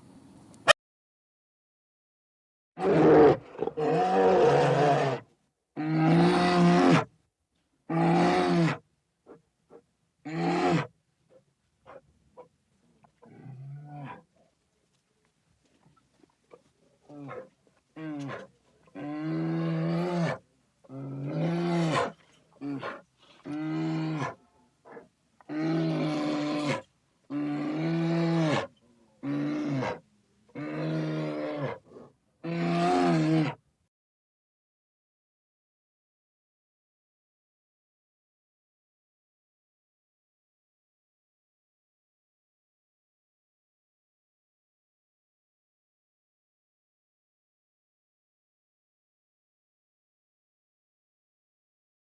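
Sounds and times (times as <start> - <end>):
lion roaring: 2.8 - 5.2, 16.5 - 30.0, 30.6 - 33.6.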